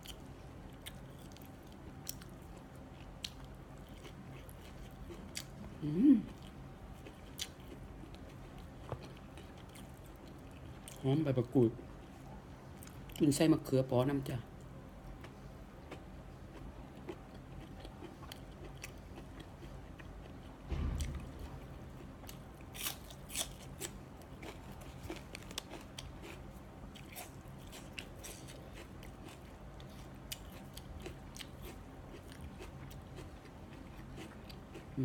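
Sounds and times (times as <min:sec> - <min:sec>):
person chewing food: 0:00.0 - 0:11.0, 0:15.0 - 0:35.0
low thump: 0:20.7 - 0:22.4.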